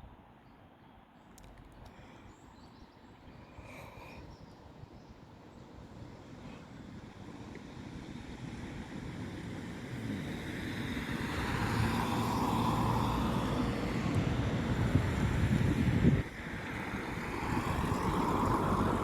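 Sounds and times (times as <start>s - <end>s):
approaching vehicle rumble: 7.2s - 19.0s.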